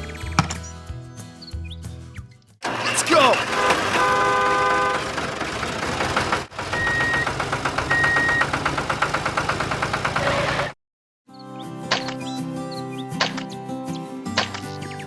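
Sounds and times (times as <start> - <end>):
engine chugging: 2.6 - 10.8
chord-like horn tone: 2.9 - 5.1.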